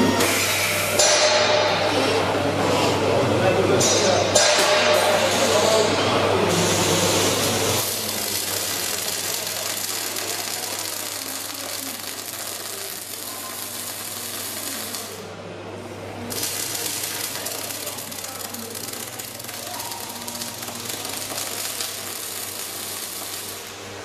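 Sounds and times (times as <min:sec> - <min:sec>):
welding arc crackling: 0:06.6 - 0:24.0.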